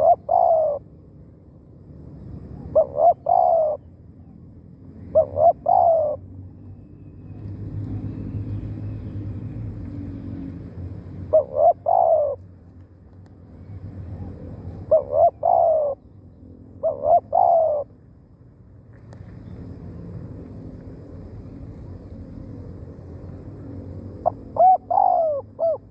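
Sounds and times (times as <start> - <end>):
dove cooing: 0.0 - 0.9, 2.4 - 3.9, 4.9 - 6.3, 11.2 - 12.4, 14.1 - 16.0, 16.8 - 18.0, 24.2 - 25.9.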